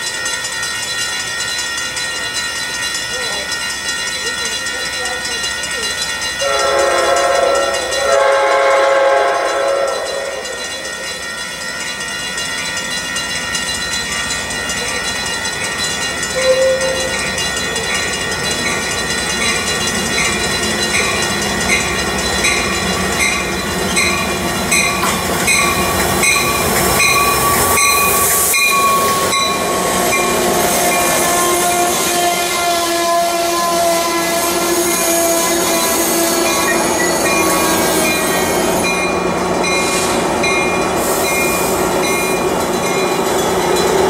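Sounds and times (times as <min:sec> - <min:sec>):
train rumbling: 0:00.0 - 0:44.0
train brakes squealing: 0:00.8 - 0:44.0
train horn: 0:06.4 - 0:10.7, 0:16.4 - 0:17.1, 0:30.4 - 0:36.8
bell ringing: 0:09.4 - 0:31.7.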